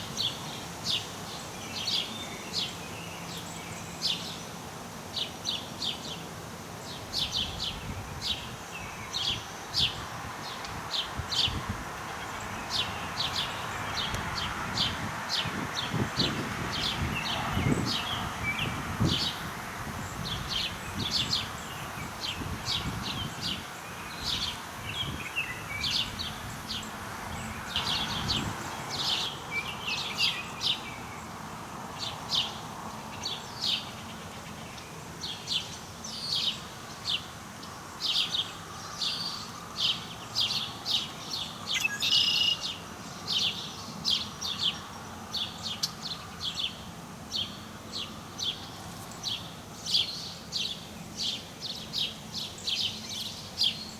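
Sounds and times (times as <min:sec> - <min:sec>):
wind rustle: 0:00.0 - 0:53.9
bird chirping: 0:38.1 - 0:53.9.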